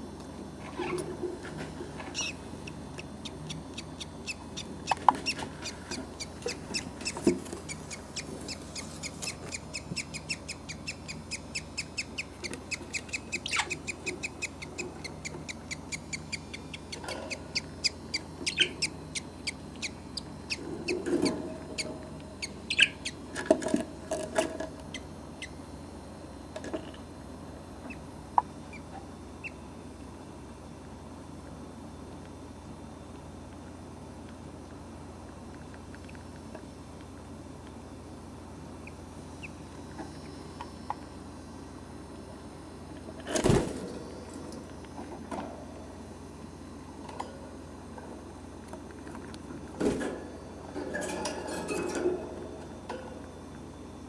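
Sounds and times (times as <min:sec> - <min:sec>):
budgerigars chirping: 0:02.2 - 0:02.4, 0:03.2 - 0:23.2.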